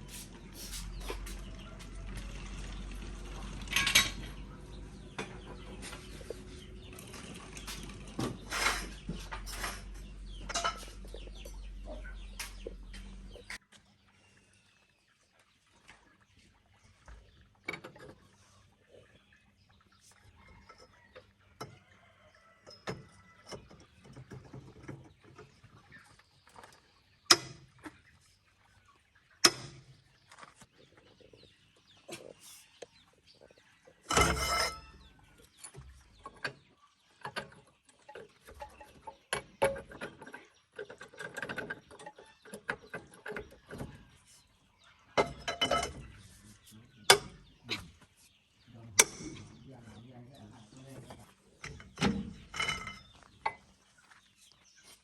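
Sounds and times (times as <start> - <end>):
metal tools clanking: 2.2 - 13.6, 34.0 - 36.6, 45.2 - 47.5, 49.0 - 49.5, 51.0 - 53.7.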